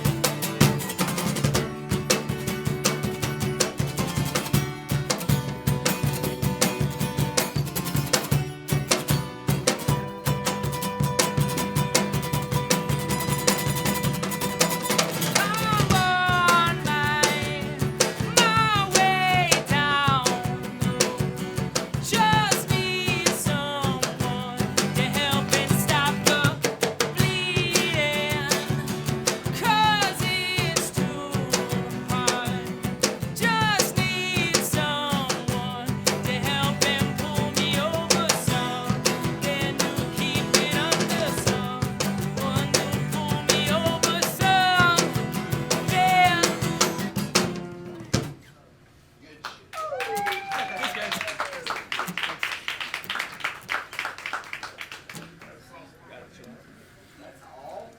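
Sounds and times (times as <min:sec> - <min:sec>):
live rock band playing: 0:00.0 - 0:48.2
drum kit beat: 0:00.0 - 0:48.4
person singing: 0:15.3 - 0:47.0.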